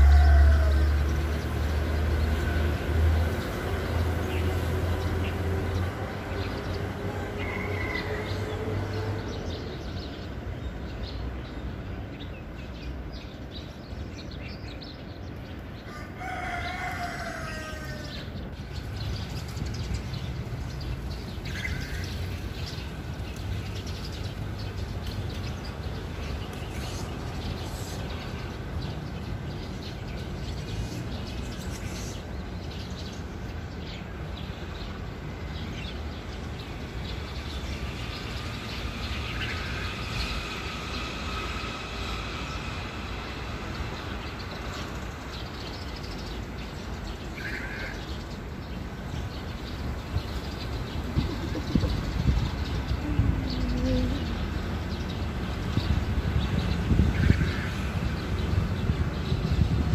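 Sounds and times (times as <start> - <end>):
bird calls: 45.4 - 55.2.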